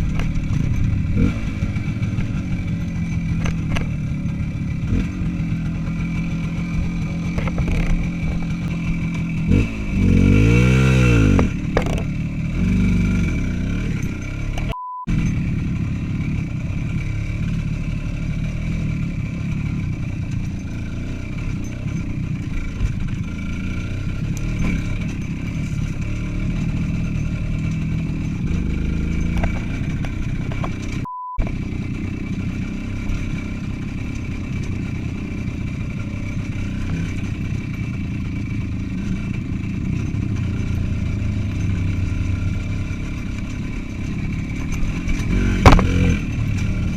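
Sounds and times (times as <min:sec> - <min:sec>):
motorcycle engine revving: 0:00.0 - 0:46.9
short beep: 0:14.6 - 0:15.2, 0:31.0 - 0:31.5.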